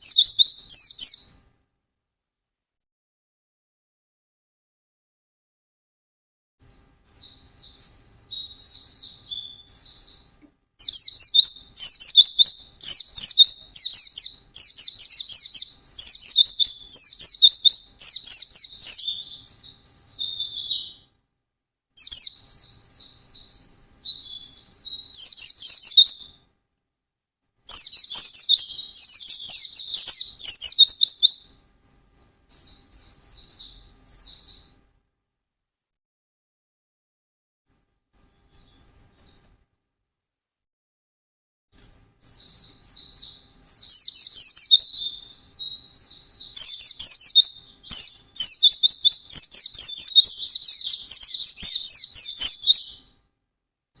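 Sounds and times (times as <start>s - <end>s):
bird twittering song: 0.0s - 1.5s, 6.6s - 21.1s, 22.0s - 26.4s, 27.6s - 34.8s, 37.8s - 39.5s, 41.8s - 53.1s.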